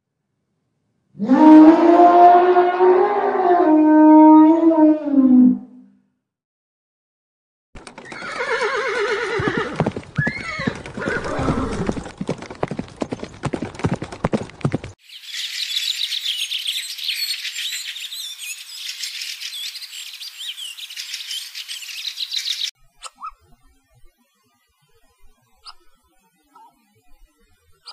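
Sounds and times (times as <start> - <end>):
hooves clip-clopping: 7.8 - 8.6, 9.2 - 15.0
horse neighing: 8.0 - 12.0.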